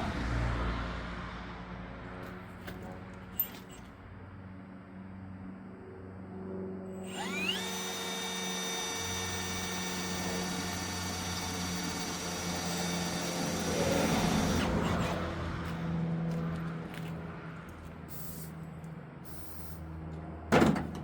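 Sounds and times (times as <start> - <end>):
drill bit cutting roughly: 7.0 - 15.2
electric drill whining: 7.0 - 15.4.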